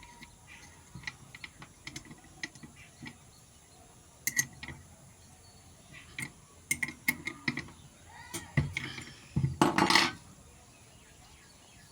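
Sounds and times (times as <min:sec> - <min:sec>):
sharp clicks and knocks: 0:00.0 - 0:03.2, 0:06.1 - 0:10.2.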